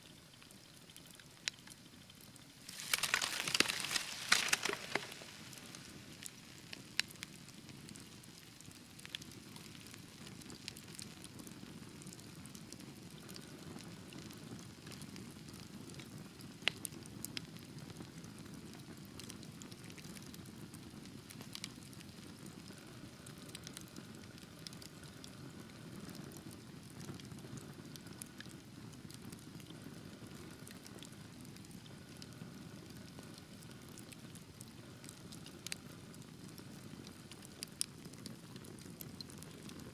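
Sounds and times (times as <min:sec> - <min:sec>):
wood fire crackling and popping: 0:02.6 - 0:16.9, 0:27.9 - 0:39.9.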